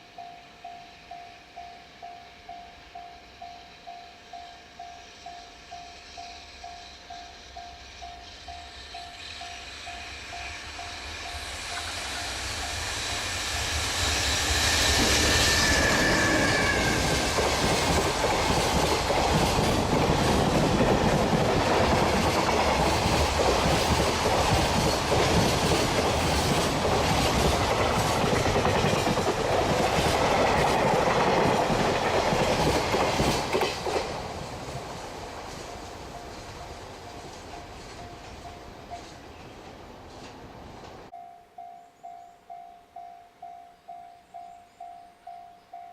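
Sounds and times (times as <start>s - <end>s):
falling whine: 5.1s - 28.6s
train wheels clattering over rail joints: 11.6s - 38.4s.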